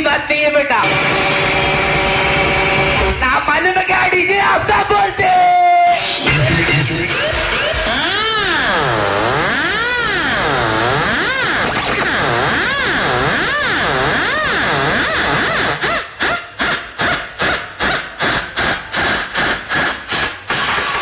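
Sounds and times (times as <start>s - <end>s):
electronic siren effect wailing: 0.8s - 3.3s, 5.2s - 16.0s.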